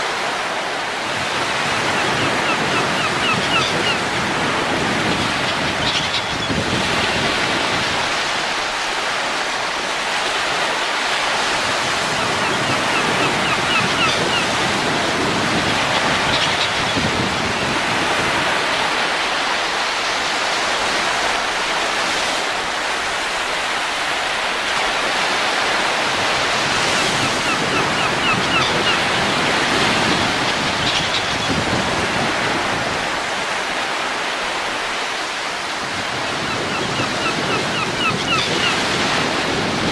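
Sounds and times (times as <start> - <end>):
wind blowing: 0.3 - 39.9.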